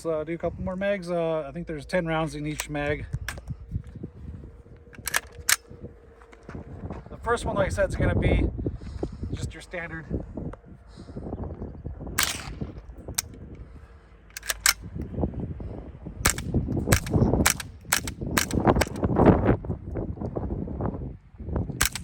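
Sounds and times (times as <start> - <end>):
wind rumble on microphone: 0.0 - 22.0
suppressed gunshots: 4.9 - 5.8, 12.2 - 13.3, 16.2 - 19.0, 21.8 - 22.0.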